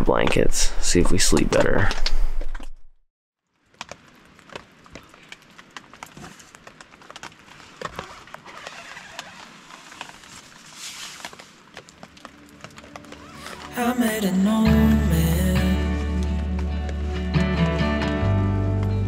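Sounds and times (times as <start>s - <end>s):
rain dripping on a tarp: 3.4s - 18.2s
soft rain patter: 3.4s - 18.2s.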